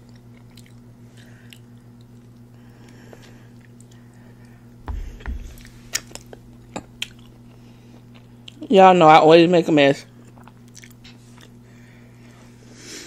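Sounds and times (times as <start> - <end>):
chewing and mouth sounds: 0.0 - 4.2, 5.6 - 8.6, 10.1 - 11.6
steady low hum: 0.0 - 13.0
fork thudding on paper plate: 4.8 - 7.4.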